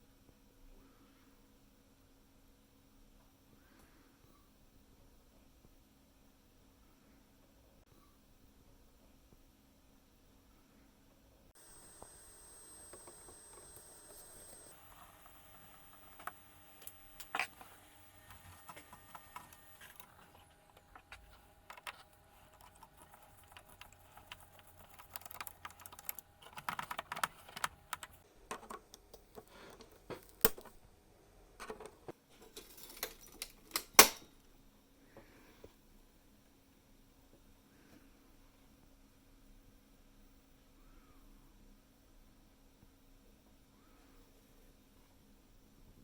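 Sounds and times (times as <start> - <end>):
small parts and tools clicking: 11.8 - 30.7.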